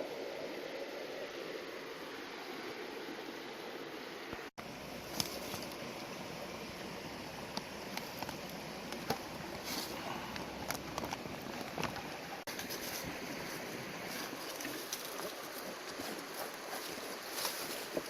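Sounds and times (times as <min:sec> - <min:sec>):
flowing river water: 0:00.0 - 0:18.0.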